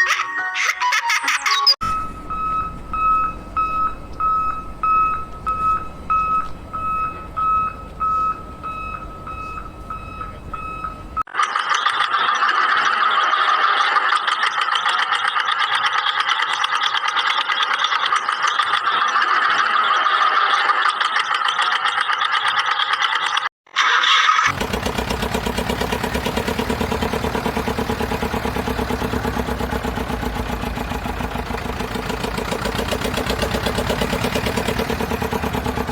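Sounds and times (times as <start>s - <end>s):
low engine rumble: 1.8s - 11.2s, 24.5s - 35.9s
reversing alarm beeping: 1.8s - 11.2s
rattly engine: 1.8s - 35.9s.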